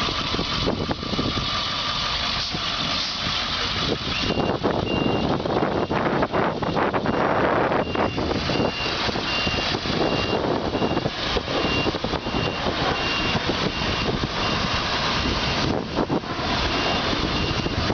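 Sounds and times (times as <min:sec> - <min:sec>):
truck engine and road noise: 0:00.0 - 0:17.9
high-pitched beeping alarm: 0:04.1 - 0:17.9.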